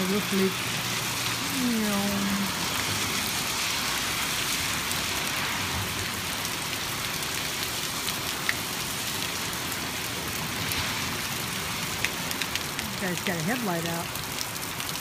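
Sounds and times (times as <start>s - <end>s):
heavy rain hissing: 0.0s - 15.0s
sharp drip ticks: 12.0s - 15.0s.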